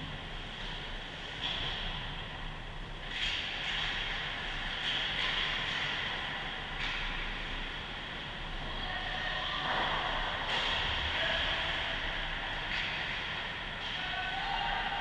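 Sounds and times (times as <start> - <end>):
ice rink arena noise: 0.0 - 15.0.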